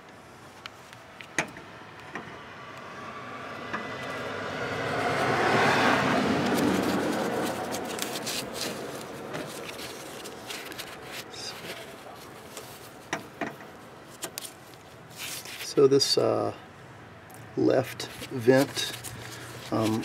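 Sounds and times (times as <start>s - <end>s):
road vehicle passing by: 1.6s - 13.0s.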